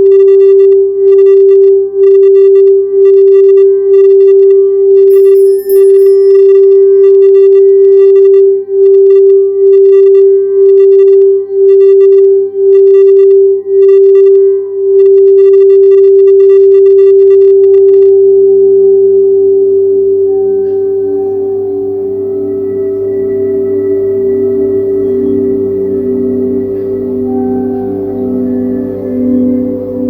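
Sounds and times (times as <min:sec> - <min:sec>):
singing bowl steady tone: 0:04.9 - 0:15.6, 0:18.2 - 0:30.0.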